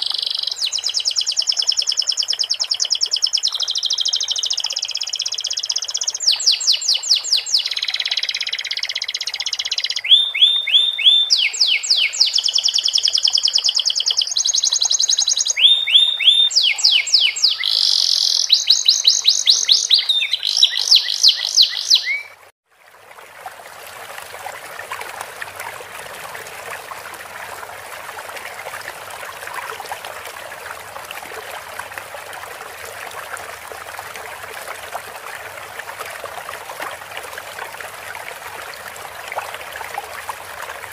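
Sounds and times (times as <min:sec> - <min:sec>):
canary singing trills: 0:00.0 - 0:22.4
flowing stream water: 0:00.0 - 0:40.9.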